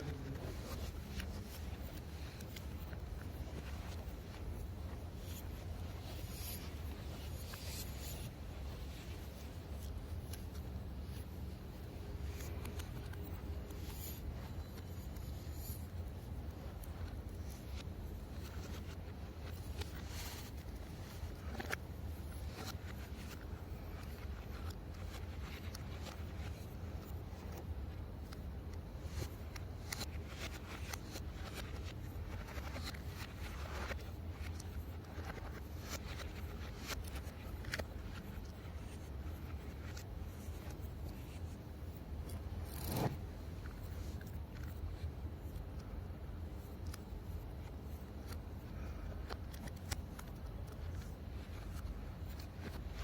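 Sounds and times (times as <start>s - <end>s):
steady low hum: 0.0s - 53.0s
small parts scraping: 42.2s - 44.8s.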